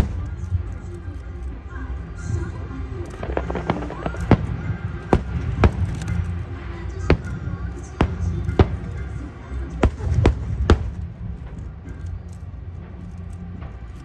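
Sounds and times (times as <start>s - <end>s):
fireworks crackles: 0.0s - 14.0s
low rumble: 0.0s - 14.0s
fireworks bangs: 3.0s - 11.6s.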